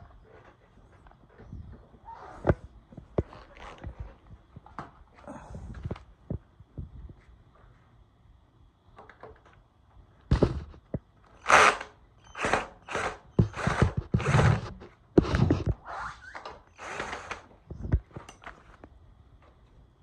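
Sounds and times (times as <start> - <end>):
loud rasping hand tool strokes: 12.4 - 14.8.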